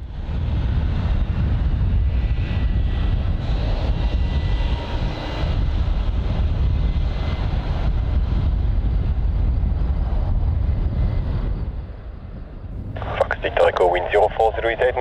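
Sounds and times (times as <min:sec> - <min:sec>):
jet engines rumbling: 0:09.0 - 0:15.0
faint high engine whine: 0:10.9 - 0:15.0.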